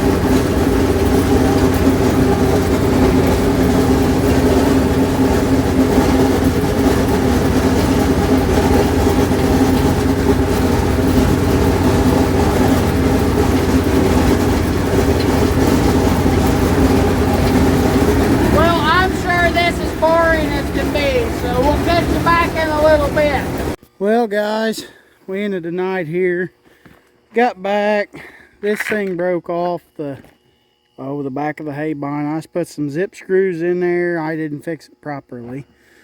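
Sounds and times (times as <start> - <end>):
tractor engine and mower din: 0.0 - 23.8.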